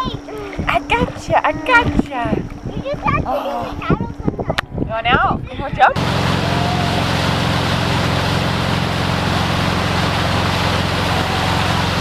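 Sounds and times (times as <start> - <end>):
wind noise: 0.0 - 7.6
motorboat engine running: 0.0 - 12.0
water noise: 0.0 - 12.0.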